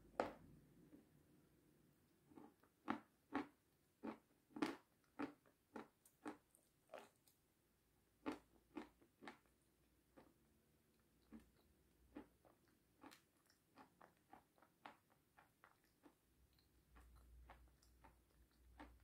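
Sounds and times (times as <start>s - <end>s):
crunchy chewing: 2.3s - 7.4s, 11.2s - 19.0s.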